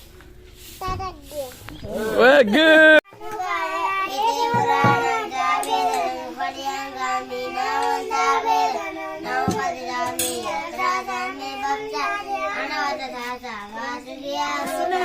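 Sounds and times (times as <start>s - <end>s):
children singing: 3.1s - 15.0s.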